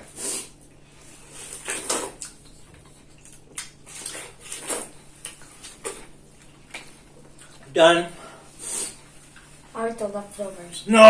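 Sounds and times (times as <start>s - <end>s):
watermelon bites and chewing: 1.5s - 7.6s.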